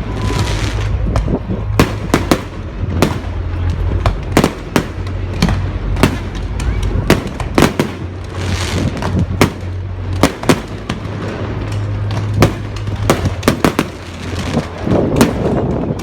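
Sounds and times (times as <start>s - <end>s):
fireworks bangs and crackles: 0.0s - 16.0s
low rumble: 0.0s - 16.0s
firework hiss: 7.1s - 15.6s.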